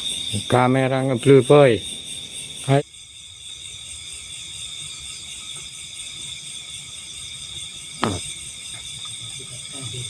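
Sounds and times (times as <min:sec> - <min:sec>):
night insects chorus: 0:00.0 - 0:10.0.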